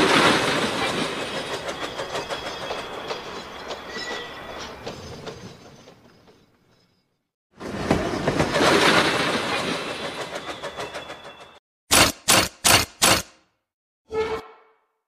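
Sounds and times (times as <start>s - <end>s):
railway wheels clicking on rails: 0.0s - 6.8s, 7.6s - 13.3s
rumbling train: 0.0s - 12.5s
thin high wheel squeal: 1.4s - 5.5s.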